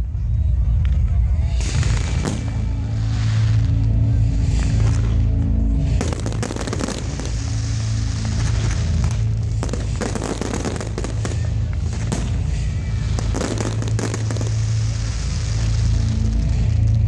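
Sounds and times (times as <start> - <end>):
music with low bass: 0.0 - 17.0
fireworks crackling and banging: 0.5 - 17.0.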